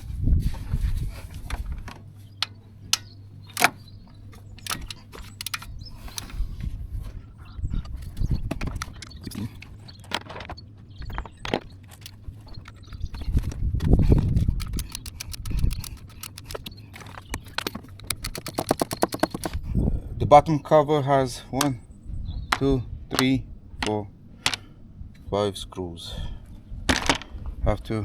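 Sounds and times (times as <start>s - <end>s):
tools clicking and knocking: 1.8s - 6.4s, 7.8s - 19.6s, 22.5s - 24.7s
fast even run of clicks: 3.5s - 6.4s, 7.8s - 10.4s, 11.1s - 19.7s.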